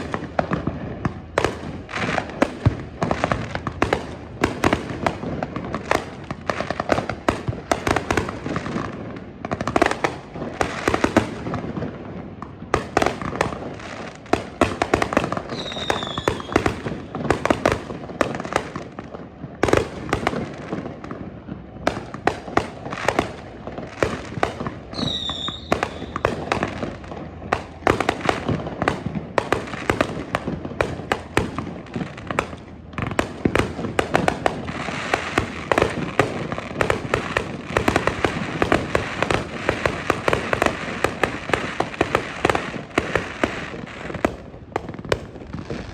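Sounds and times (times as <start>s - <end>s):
fireworks bangs and crackling: 0.0s - 45.9s
falling firework whistle: 15.5s - 17.2s, 24.8s - 26.7s.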